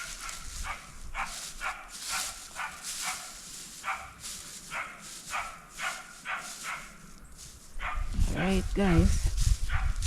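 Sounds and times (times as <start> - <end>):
dog barking: 0.0 - 7.0, 7.8 - 8.1, 9.7 - 10.0
rustling hiss: 0.0 - 9.8.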